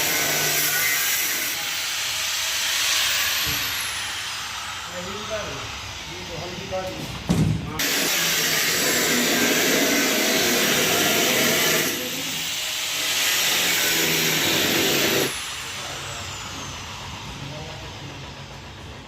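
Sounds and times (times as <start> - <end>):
power tool motor whine: 7.8 - 17.1.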